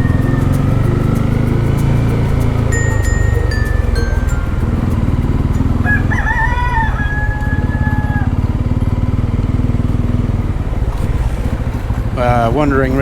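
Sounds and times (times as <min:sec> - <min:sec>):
rooster crowing: 0:00.0 - 0:09.4
motorcycle engine running: 0:00.0 - 0:13.0.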